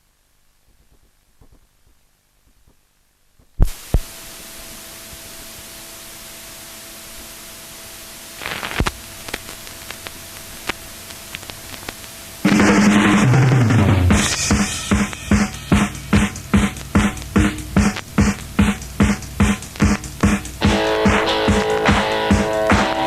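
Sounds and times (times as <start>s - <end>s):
faint hum: 0.0s - 23.0s
recording hiss: 0.0s - 23.0s
drums: 3.4s - 5.7s, 8.3s - 23.0s
vinyl clicks and crackles: 8.4s - 12.5s, 16.3s - 18.8s.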